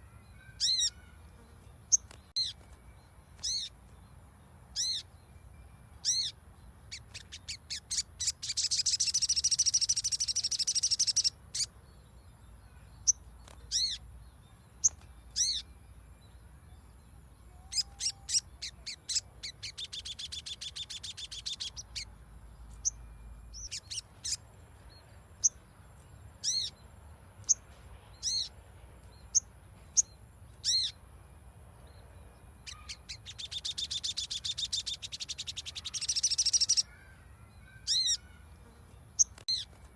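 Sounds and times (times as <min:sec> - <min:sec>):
bird call notes: 0:32.6 - 0:38.5.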